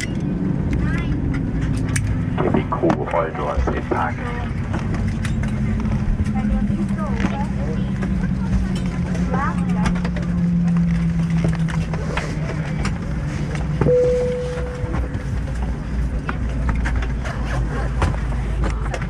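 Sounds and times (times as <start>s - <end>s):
aircraft cabin rumble: 0.0s - 19.0s
low hum: 0.0s - 19.0s
short steady tone: 13.8s - 15.2s.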